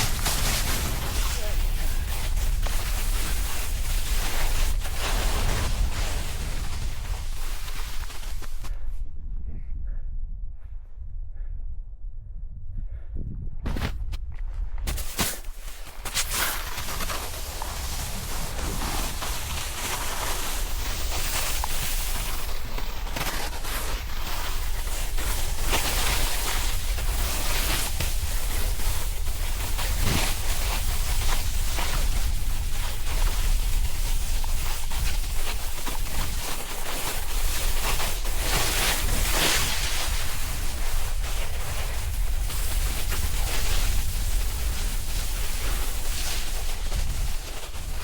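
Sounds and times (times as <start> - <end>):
snowboard scraping on snow: 0.0 - 8.7, 14.9 - 48.0
wind buffeting microphone: 0.0 - 14.9.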